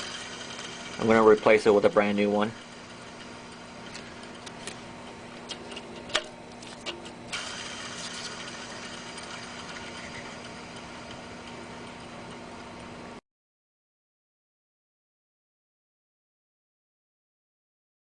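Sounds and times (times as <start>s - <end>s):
pulley whirring roughly: 0.0s - 4.9s, 5.5s - 12.4s
steady low hum: 0.0s - 13.2s.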